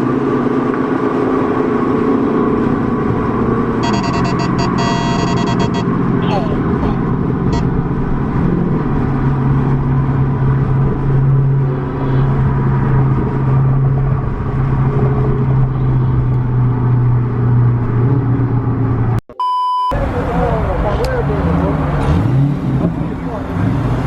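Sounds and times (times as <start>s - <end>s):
car engine running: 0.0s - 19.2s.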